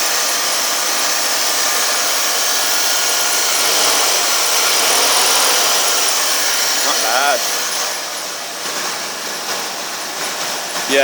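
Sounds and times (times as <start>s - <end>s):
car engine idling: 2.6s - 10.4s
steady hiss and high whine: 3.0s - 8.6s.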